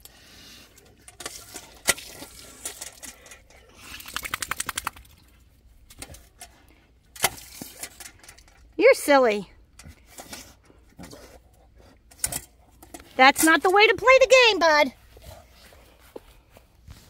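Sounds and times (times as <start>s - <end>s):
dog playing with water fountain: 1.0s - 5.2s.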